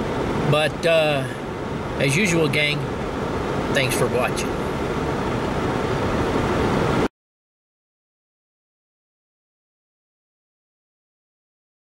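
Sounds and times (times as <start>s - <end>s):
steady noise: 0.0s - 7.1s.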